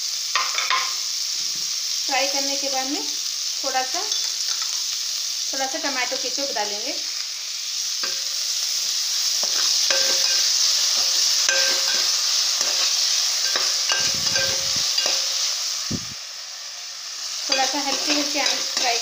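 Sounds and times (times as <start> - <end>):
vegetables sizzling in oil: 0.0 - 19.0
spoon scraping a metal pan: 9.4 - 15.5, 17.5 - 19.0.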